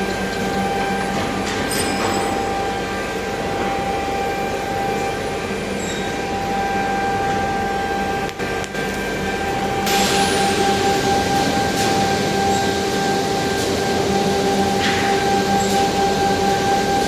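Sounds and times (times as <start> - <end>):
power tool whining: 8.8 - 17.0.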